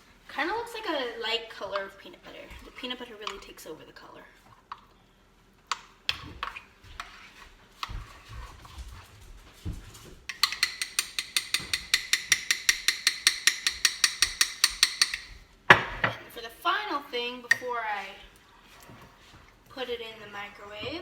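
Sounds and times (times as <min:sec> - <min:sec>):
spoon stirring cookie dough: 0:00.4 - 0:05.0, 0:05.7 - 0:09.1, 0:10.3 - 0:15.5.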